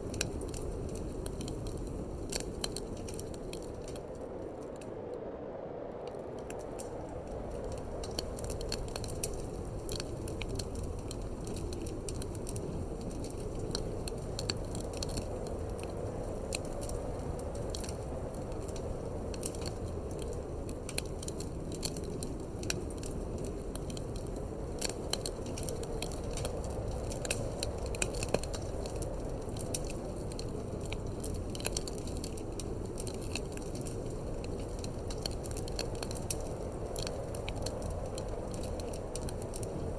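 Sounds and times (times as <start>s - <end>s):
wood fire crackling and popping: 0.0s - 5.2s, 5.9s - 39.9s
low rush of wind: 0.0s - 39.9s.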